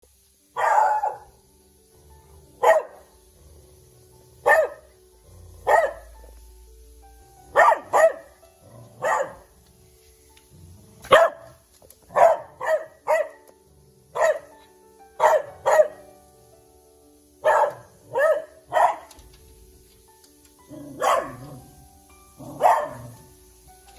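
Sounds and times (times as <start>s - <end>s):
dog barking: 0.6s - 1.3s, 2.6s - 3.1s, 4.4s - 4.9s, 5.6s - 6.1s, 7.5s - 8.4s, 9.0s - 9.5s, 11.1s - 13.5s, 14.2s - 14.5s, 15.2s - 16.0s, 17.4s - 19.1s, 20.8s - 21.6s, 22.4s - 23.2s.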